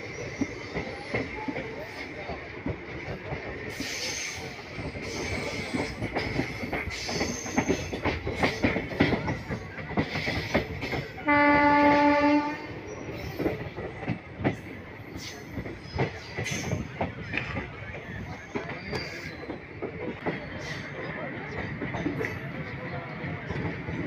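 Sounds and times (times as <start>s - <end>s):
train wheels clattering: 0.0s - 24.0s
locomotive horn: 11.2s - 12.8s.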